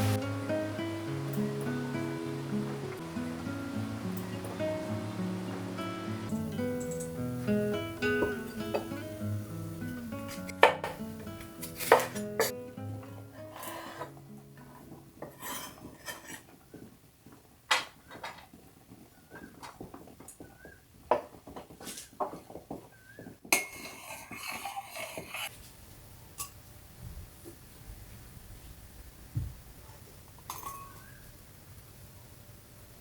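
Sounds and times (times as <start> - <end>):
dishes and utensils clinking: 6.4 - 9.1, 10.3 - 16.6, 23.5 - 25.5, 30.4 - 31.1.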